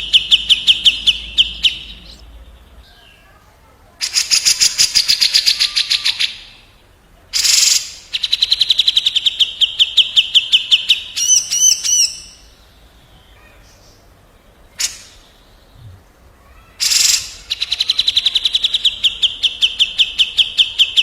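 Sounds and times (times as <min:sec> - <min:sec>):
birds trilling: 0:00.0 - 0:03.4.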